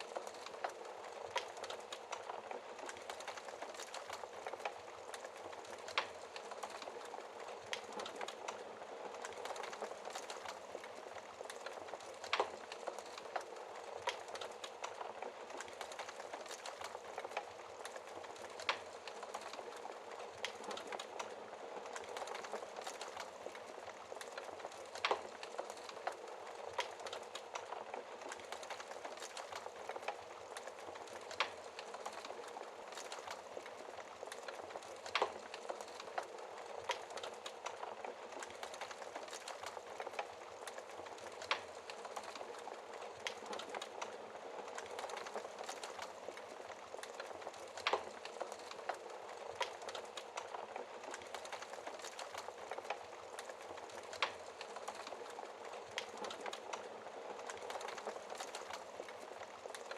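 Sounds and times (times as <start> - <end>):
fireplace fire crackling: 0.0 - 59.9.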